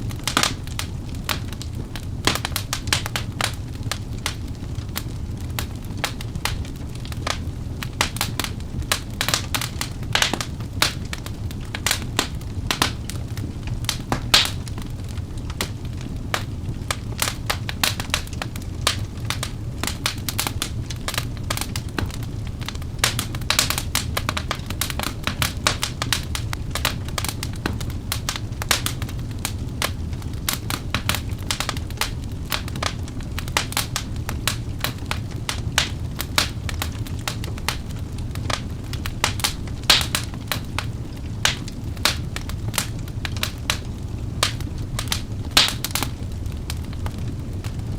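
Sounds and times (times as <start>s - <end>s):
low rumble of flames: 0.0s - 47.9s
wood fire crackling and popping: 0.0s - 47.9s.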